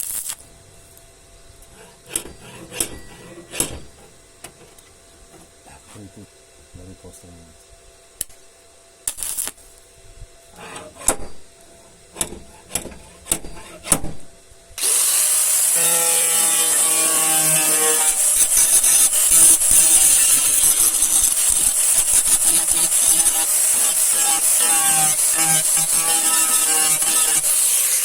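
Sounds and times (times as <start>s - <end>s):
rubbing or scraping strokes: 1.7s - 6.2s, 10.6s - 13.9s
power tool hissing high-pitched: 14.8s - 28.0s.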